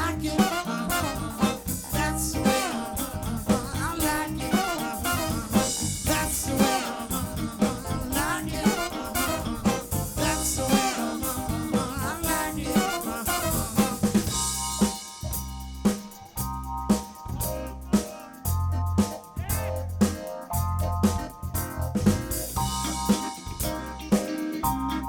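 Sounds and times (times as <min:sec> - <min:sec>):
person singing: 0:00.0 - 0:14.4
drum kit steady beat: 0:00.0 - 0:25.0
live soul band playing: 0:00.0 - 0:25.0.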